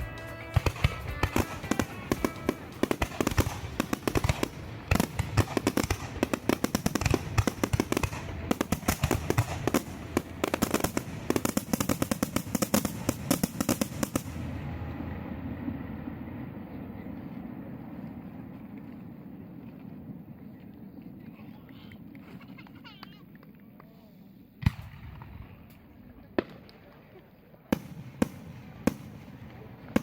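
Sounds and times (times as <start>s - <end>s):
background music: 0.0s - 12.2s
fireworks bangs and crackles: 0.0s - 20.4s, 24.6s - 30.0s
low rumble: 12.4s - 21.2s.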